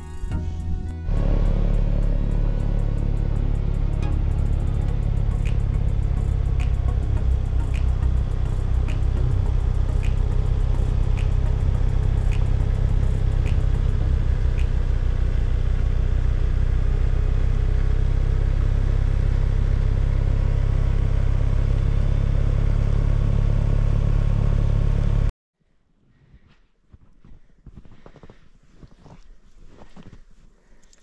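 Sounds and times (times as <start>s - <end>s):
engine rumbling: 0.0s - 25.3s
light ticking: 3.1s - 15.1s.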